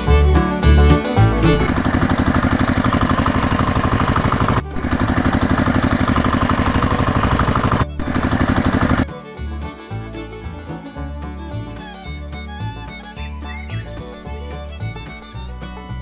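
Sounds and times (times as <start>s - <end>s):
music: 0.0s - 1.7s, 8.8s - 16.0s
small engine chugging: 1.5s - 9.1s.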